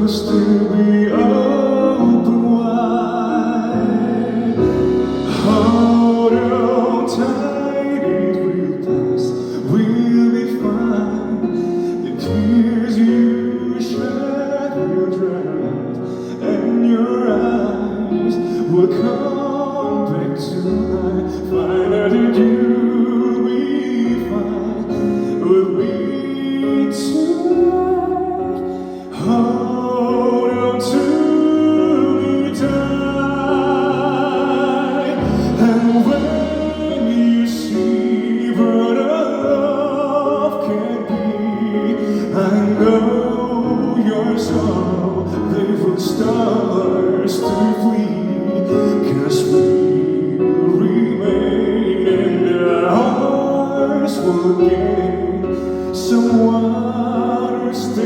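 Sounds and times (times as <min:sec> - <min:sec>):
person singing pop ballad: 0:00.0 - 0:58.0
band accompaniment: 0:00.8 - 0:08.2, 0:32.6 - 0:38.9
sharp percussion hits: 0:03.6 - 0:07.5.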